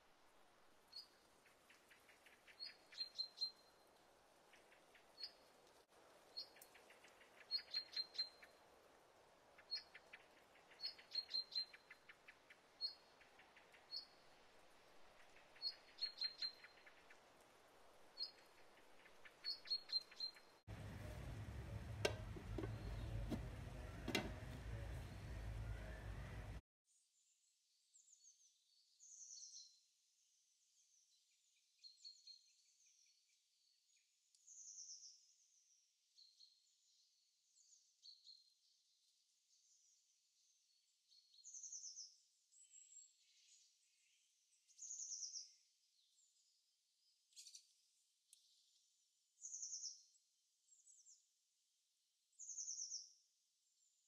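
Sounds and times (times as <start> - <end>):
faint hiss: 0.0 - 26.6
small birds chirping: 0.8 - 26.6, 30.8 - 51.3, 52.3 - 53.2
higher bird calls: 18.2 - 26.6
low rumble and clicks: 20.7 - 26.6.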